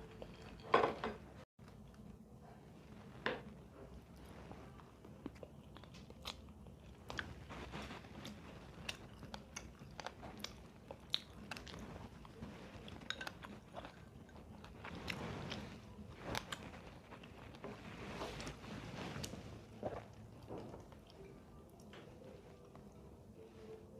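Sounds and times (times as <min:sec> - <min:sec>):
person chewing crunchy food: 0:04.4 - 0:21.9.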